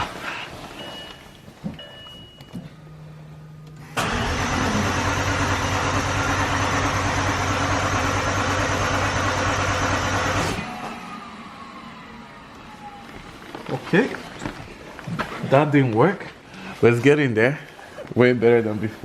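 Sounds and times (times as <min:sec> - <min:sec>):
car engine cranking: 0:03.8 - 0:12.9.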